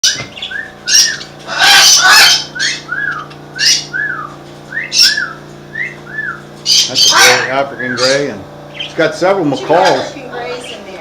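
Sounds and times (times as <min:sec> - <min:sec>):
parrots squawking: 0:00.0 - 0:11.0
steady low hum: 0:00.0 - 0:11.0.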